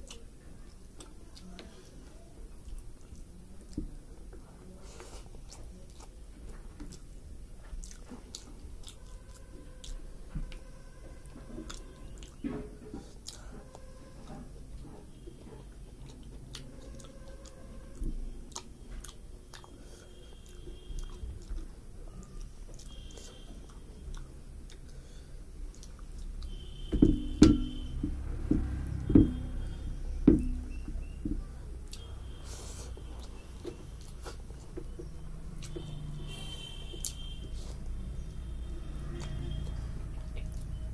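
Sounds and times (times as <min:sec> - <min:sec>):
person chewing with wet mouth clicks: 0:00.0 - 0:00.3, 0:00.9 - 0:04.0, 0:05.0 - 0:10.7, 0:11.6 - 0:12.4, 0:13.0 - 0:13.8, 0:14.8 - 0:25.0, 0:25.6 - 0:29.1, 0:30.5 - 0:36.1, 0:36.9 - 0:37.6.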